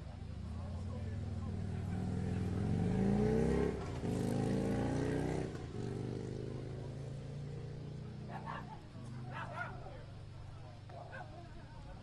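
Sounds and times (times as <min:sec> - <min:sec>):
vehicle engine accelerating: 0:00.0 - 0:08.4.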